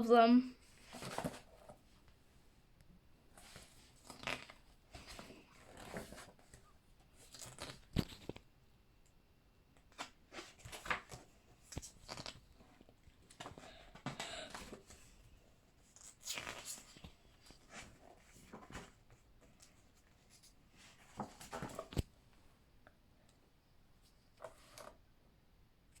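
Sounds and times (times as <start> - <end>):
book pages turning: 0.8 - 1.8, 3.4 - 6.6, 7.2 - 8.4, 9.8 - 13.8, 15.9 - 22.1.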